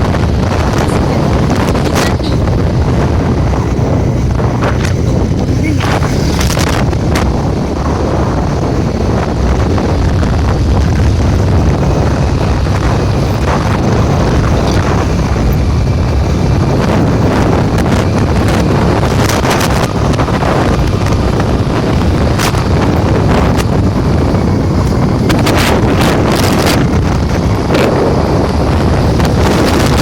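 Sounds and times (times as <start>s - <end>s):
wind buffeting microphone: 0.0s - 30.0s
knocks and crackles: 3.6s - 7.4s.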